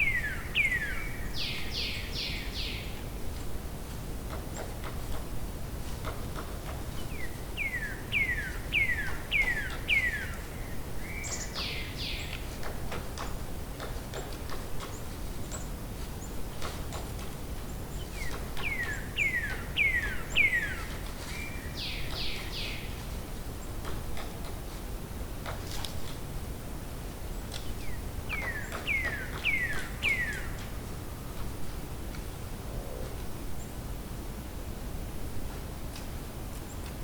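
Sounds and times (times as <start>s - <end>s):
songbird whistling song: 0.0s - 2.9s, 7.0s - 12.4s, 18.0s - 22.9s, 27.6s - 30.6s.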